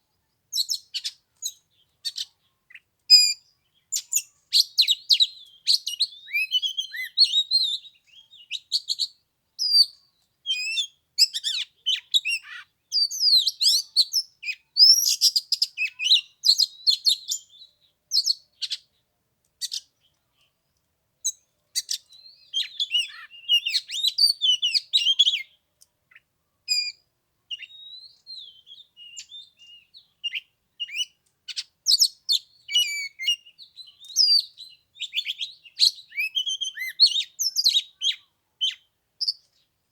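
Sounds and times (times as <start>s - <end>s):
bird singing whistles and chirps: 0.5s - 18.8s, 21.2s - 39.6s.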